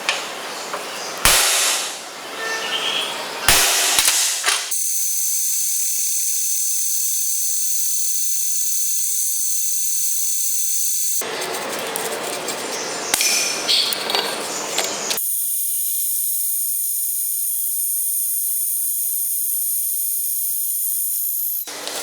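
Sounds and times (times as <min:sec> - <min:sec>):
sharp clicks: 0:03.5 - 0:11.2
workshop clatter and scraping: 0:03.9 - 0:04.7, 0:11.2 - 0:15.2.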